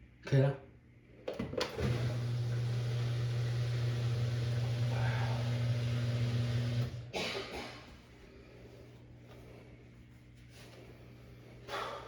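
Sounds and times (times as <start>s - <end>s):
washing machine humming: 1.2s - 7.6s.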